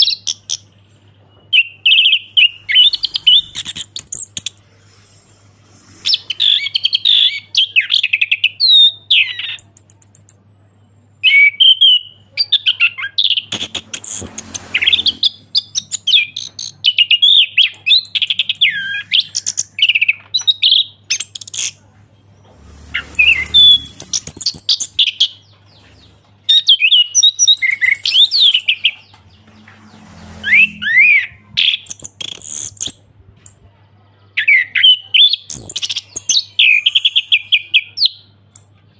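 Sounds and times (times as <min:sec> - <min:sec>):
faint steady hum: 0:00.0 - 0:26.5.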